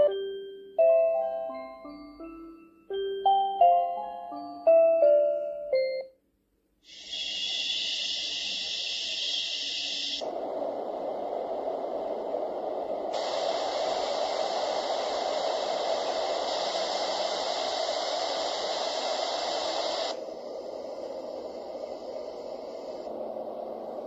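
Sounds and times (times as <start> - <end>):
white noise machine hiss: 6.8 - 24.0.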